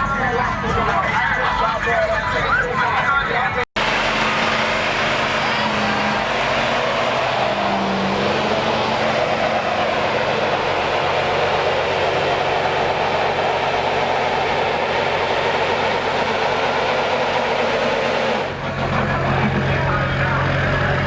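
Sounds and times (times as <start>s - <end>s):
truck engine running: 3.8s - 21.0s.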